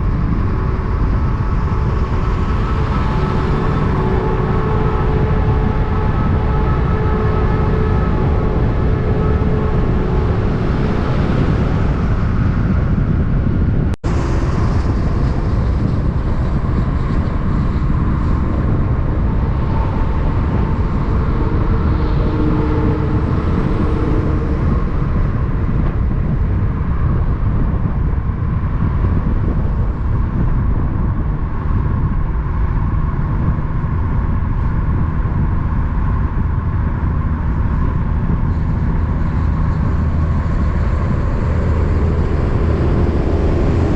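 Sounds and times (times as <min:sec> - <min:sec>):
trucks passing: 0:14.1 - 0:26.7, 0:38.5 - 0:43.9.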